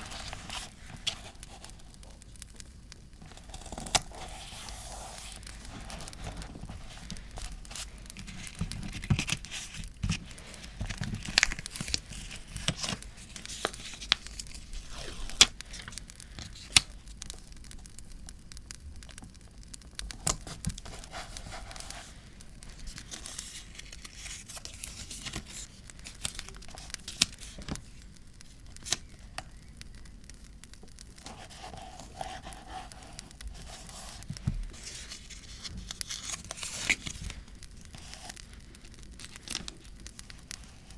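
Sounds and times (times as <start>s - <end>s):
campfire crackle: 0.0s - 4.4s, 5.4s - 40.9s
paper tearing and crinkling: 3.3s - 16.9s, 20.2s - 28.0s, 31.2s - 38.4s.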